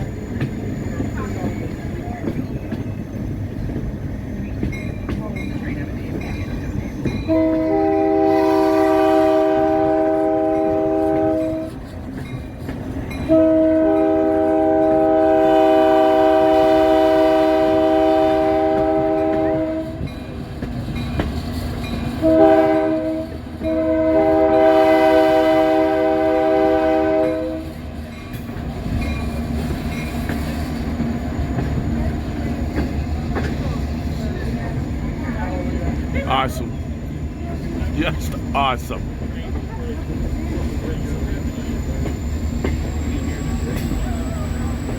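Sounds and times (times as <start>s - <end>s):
rumble of moving train: 0.0s - 44.9s
locomotive air horn blasts: 7.3s - 11.8s, 13.2s - 20.1s, 22.2s - 27.8s.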